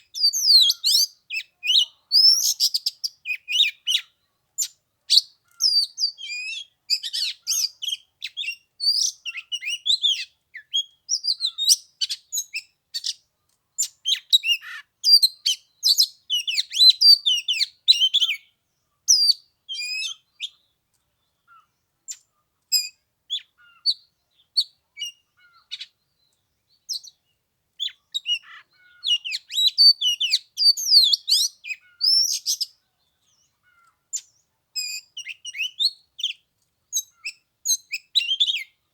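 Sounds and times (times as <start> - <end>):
bird singing whistles and chirps: 0.1 - 13.2, 13.8 - 18.5, 19.1 - 20.6, 27.8 - 32.8, 34.1 - 38.8.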